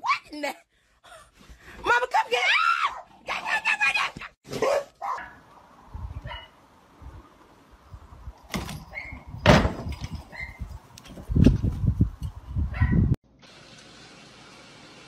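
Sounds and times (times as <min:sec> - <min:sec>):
dog barking: 0:04.6 - 0:05.4, 0:06.2 - 0:06.6, 0:12.7 - 0:13.0
dog yipping: 0:12.7 - 0:13.0.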